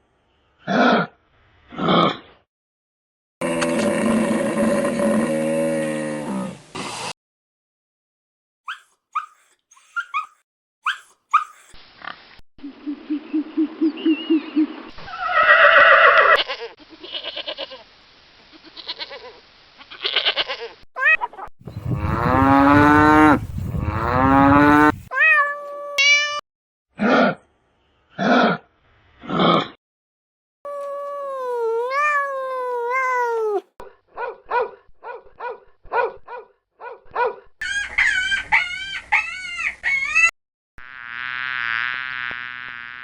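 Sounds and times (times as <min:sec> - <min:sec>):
animal chirps: 0:08.7 - 0:11.7
rising and falling animal calls: 0:12.6 - 0:16.4, 0:37.6 - 0:40.3
pulsed low animal call: 0:21.7 - 0:25.0.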